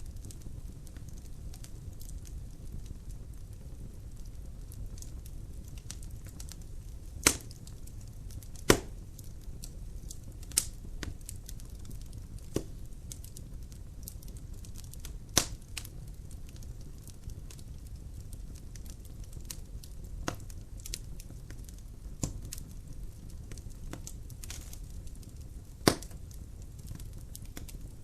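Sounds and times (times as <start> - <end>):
fire crackling in a fireplace: 0.0 - 28.0
loud sharp wood cracks: 7.2 - 7.7, 8.6 - 9.0, 25.8 - 26.2.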